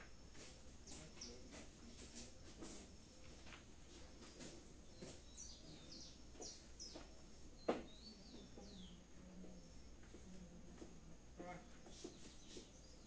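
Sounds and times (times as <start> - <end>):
faint bird chirps: 4.2 - 13.0.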